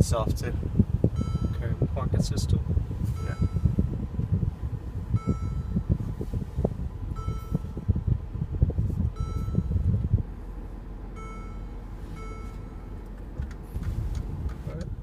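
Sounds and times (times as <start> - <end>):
low cabin rumble: 0.0 - 15.0
electronic dashboard chime: 1.1 - 1.9, 3.1 - 4.2, 5.1 - 6.1, 7.1 - 10.2, 11.1 - 13.0.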